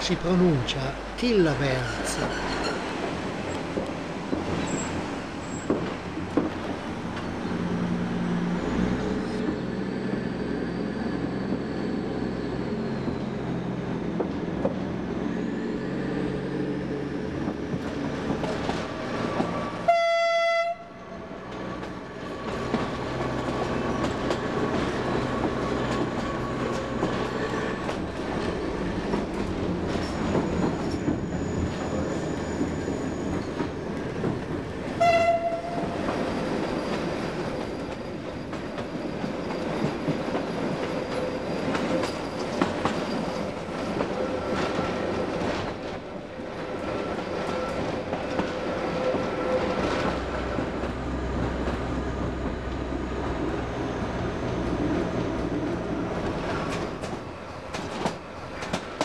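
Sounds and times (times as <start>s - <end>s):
train engine and wheels droning: 0.0s - 59.0s
train horn blast: 19.9s - 21.0s, 35.0s - 36.0s.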